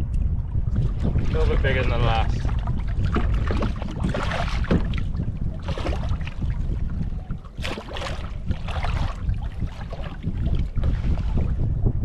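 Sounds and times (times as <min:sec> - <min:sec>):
wind rumbling on microphone: 0:00.0 - 0:12.0
water splashes: 0:00.7 - 0:11.7
knocks on kayak: 0:02.5 - 0:06.1.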